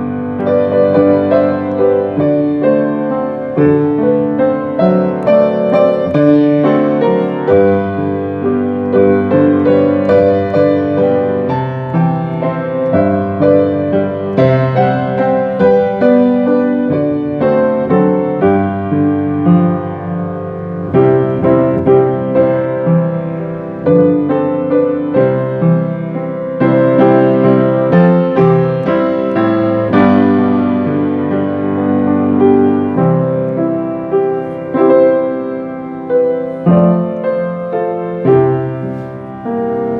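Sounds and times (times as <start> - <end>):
slow gentle piano: 0.0 - 39.9.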